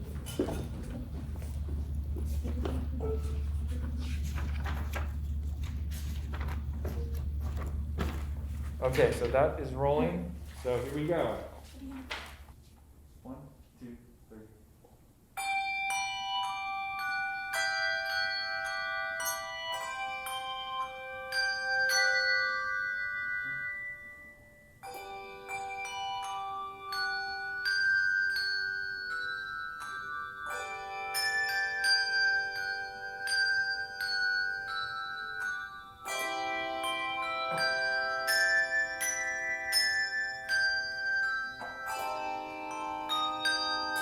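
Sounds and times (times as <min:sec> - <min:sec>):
handbell choir ringing: 0:15.4 - 0:44.0.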